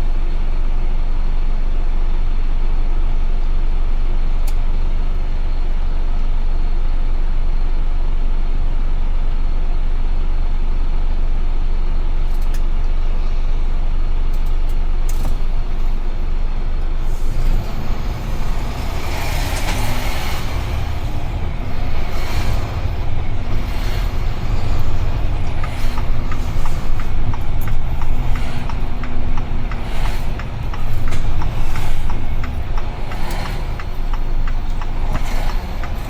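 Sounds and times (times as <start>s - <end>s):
truck engine drone: 0.0s - 36.0s
rushing noise: 17.0s - 36.0s.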